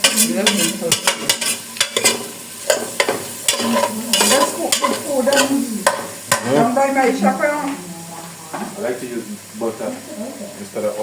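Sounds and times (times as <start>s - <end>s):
spoon stirring and scraping pot: 0.0s - 6.6s
food sizzling in a pot: 0.0s - 11.0s.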